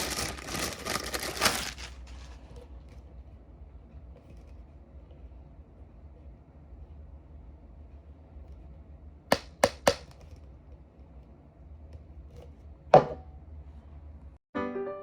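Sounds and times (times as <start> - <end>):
low steady hum: 0.0 - 14.4
piano music: 14.5 - 15.0.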